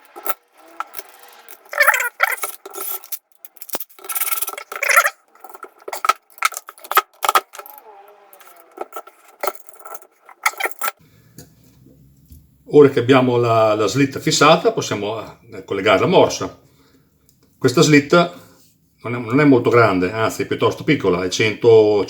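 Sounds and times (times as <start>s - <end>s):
metal clinks: 0.0s - 11.0s
metal parts scraping: 0.0s - 11.0s.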